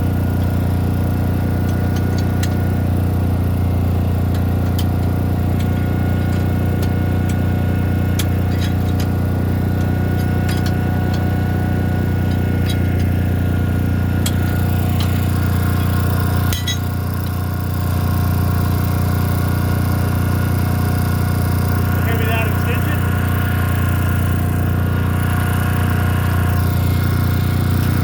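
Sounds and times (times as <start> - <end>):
engine idling: 0.0 - 28.0
sharp metallic clinks: 0.3 - 17.4.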